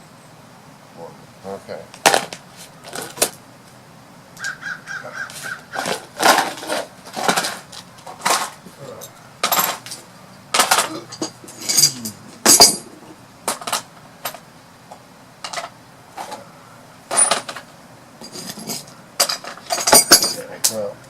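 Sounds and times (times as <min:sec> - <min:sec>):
tools and metal parts clinking: 0:05.8 - 0:14.4, 0:15.4 - 0:16.4, 0:17.1 - 0:20.9.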